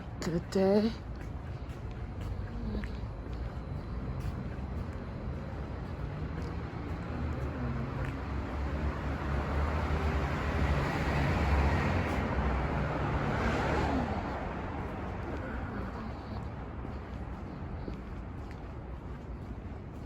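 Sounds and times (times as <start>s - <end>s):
low engine hum of traffic: 0.0s - 20.0s
vehicle passing close by: 6.5s - 15.9s.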